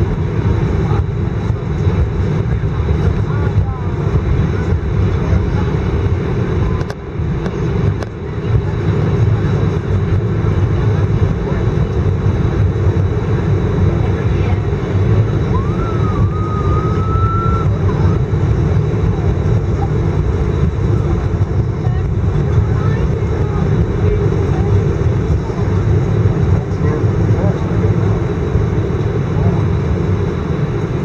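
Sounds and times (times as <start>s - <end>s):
aircraft cabin low rumble: 0.0s - 31.0s.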